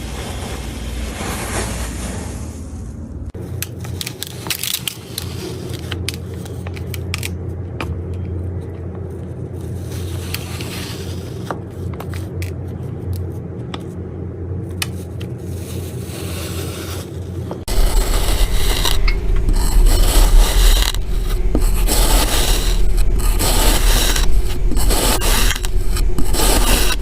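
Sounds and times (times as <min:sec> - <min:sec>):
machine humming: 0:17.5 - 0:27.0.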